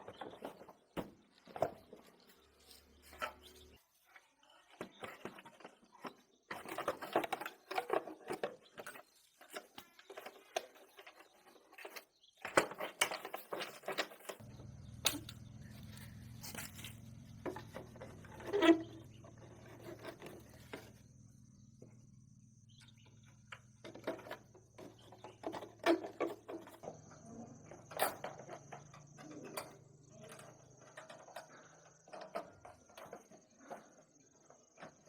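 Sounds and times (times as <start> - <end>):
steady low hum: 14.4 - 25.3.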